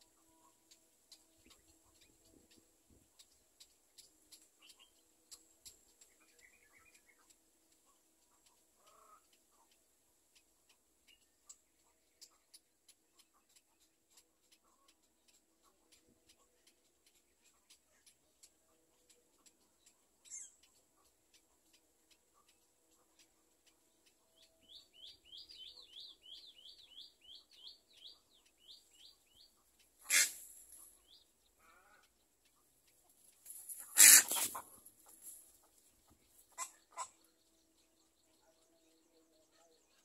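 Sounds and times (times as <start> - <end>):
faint regular ticking: 0.0 - 34.0
harsh bird squawks: 30.0 - 30.4, 33.8 - 34.6
quick high bird chirps: 33.7 - 34.6.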